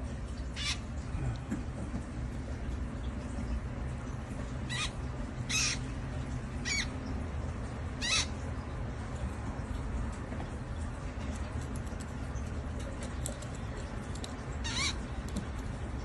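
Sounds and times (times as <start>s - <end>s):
steady low hum: 0.0s - 16.0s
baby bird chirping: 5.5s - 5.8s, 6.6s - 6.9s, 8.0s - 8.3s, 14.6s - 15.0s.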